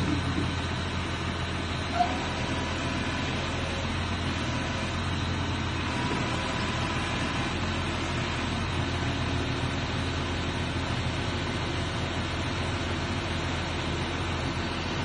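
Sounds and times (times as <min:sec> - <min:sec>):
crane engine and hydraulics drone: 0:00.0 - 0:15.0.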